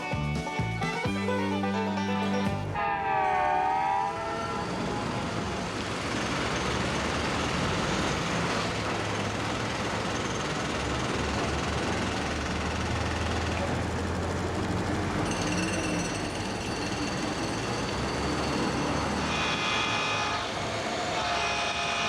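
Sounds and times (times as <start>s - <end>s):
train horn chord: 1.8s - 5.9s, 19.2s - 22.0s.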